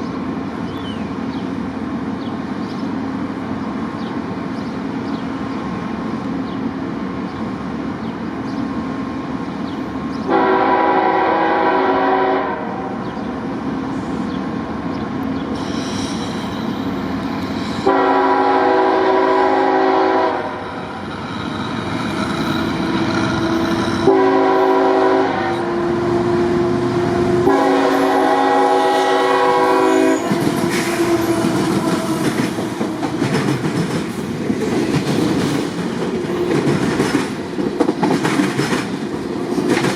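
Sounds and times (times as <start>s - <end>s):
diesel locomotive engine: 0.0s - 39.9s
locomotive air horn: 10.3s - 13.0s, 17.8s - 20.6s, 23.8s - 32.4s
train wheels clattering on rails: 13.8s - 25.0s, 27.0s - 39.9s.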